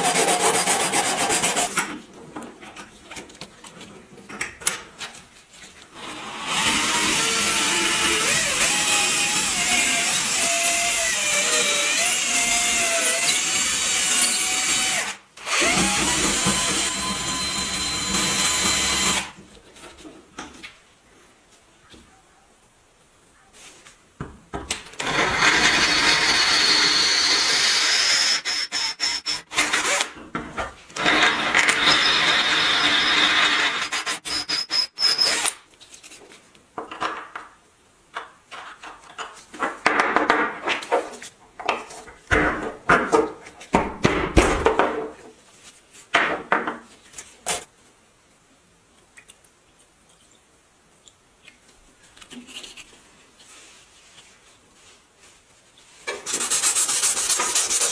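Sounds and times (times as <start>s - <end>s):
power tool running: 11.2s - 19.3s.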